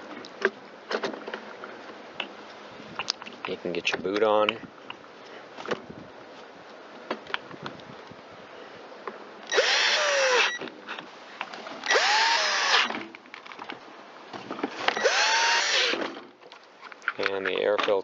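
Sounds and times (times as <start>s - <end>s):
cordless drill driving screws: 9.5s - 10.6s, 11.9s - 13.0s, 14.8s - 16.0s.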